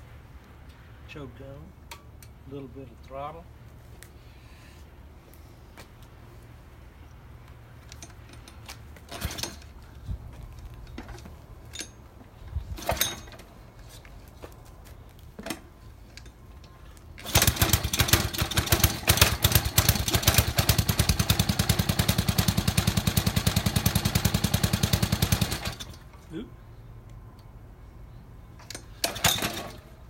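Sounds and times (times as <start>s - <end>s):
small gasoline engine running: 17.2s - 26.0s.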